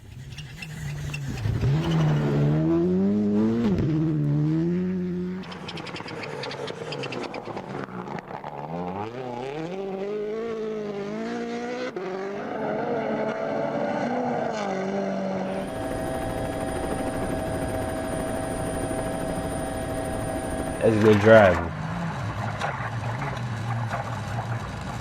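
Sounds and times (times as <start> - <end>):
rally car engine revving: 0.0 - 25.0
steady engine drone: 15.4 - 25.0.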